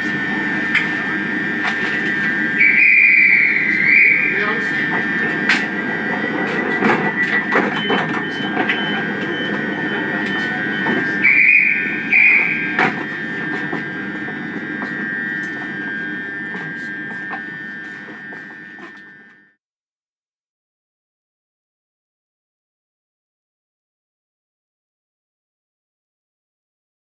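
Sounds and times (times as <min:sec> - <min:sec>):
train rumbling on rails: 0:00.0 - 0:19.3
train horn toots: 0:00.0 - 0:19.4
high wheel squeal: 0:01.7 - 0:19.0.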